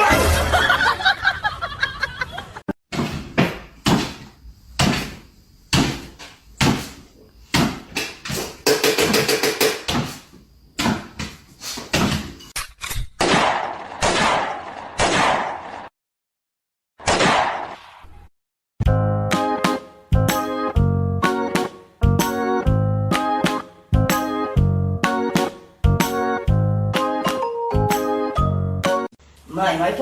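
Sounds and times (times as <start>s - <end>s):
knocks and bangs: 2.9s - 10.2s.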